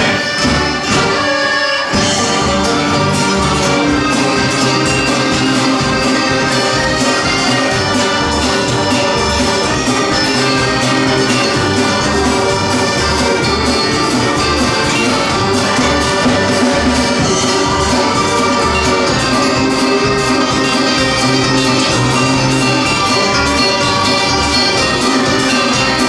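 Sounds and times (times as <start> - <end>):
live band instrumental: 0.0 - 26.0.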